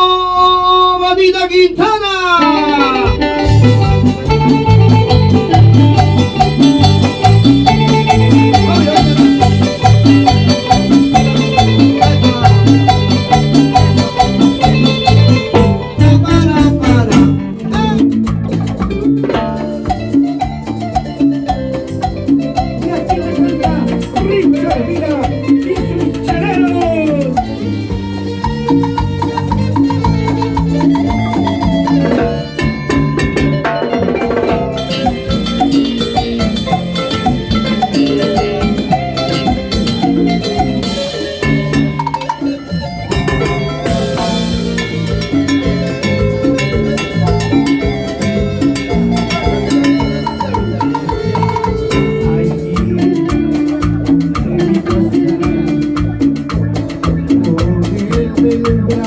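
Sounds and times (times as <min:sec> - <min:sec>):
live band playing latin dance music: 0:00.0 - 0:59.0
percussion beat: 0:02.4 - 0:59.0.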